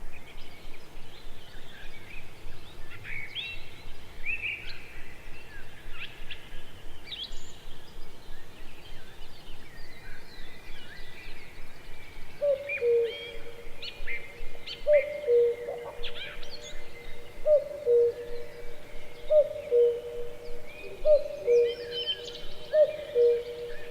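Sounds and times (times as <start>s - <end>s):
birds chirping: 7.2s - 23.9s.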